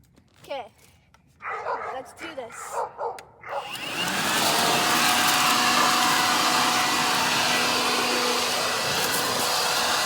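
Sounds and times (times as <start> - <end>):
leaf blower running: 3.5 - 10.0.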